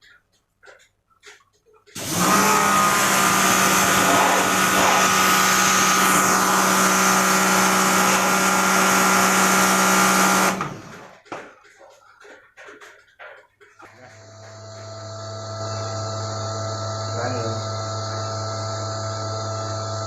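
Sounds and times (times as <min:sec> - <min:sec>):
electric motor humming and winding down: 0:02.0 - 0:11.2, 0:14.0 - 0:20.0.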